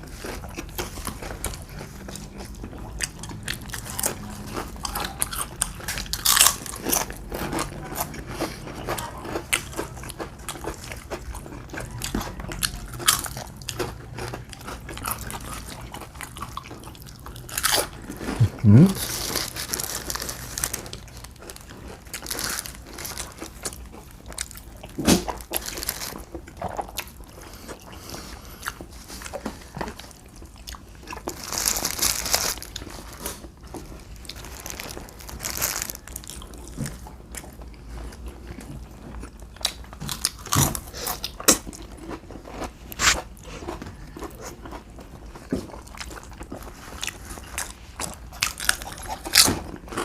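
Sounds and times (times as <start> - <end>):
biting and chewing food: 0.0 - 50.0
crunchy bites: 3.4 - 8.0, 31.0 - 37.5.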